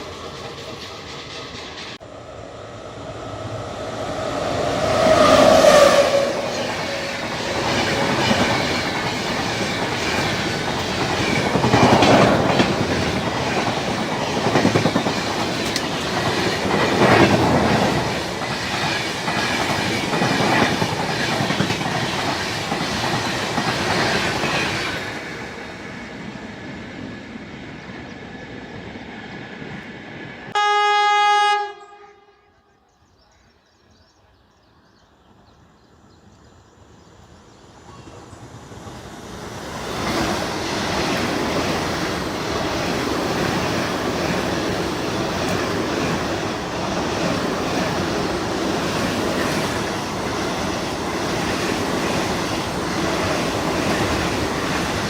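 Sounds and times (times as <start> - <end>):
train wheels clattering: 4.8 - 25.2.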